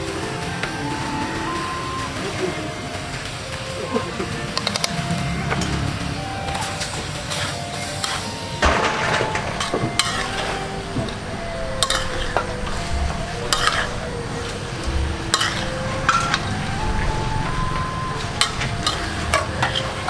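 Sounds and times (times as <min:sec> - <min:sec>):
chicken sizzling in a pan: 0:00.0 - 0:20.0
spatula scraping and knocking pan: 0:07.3 - 0:20.0.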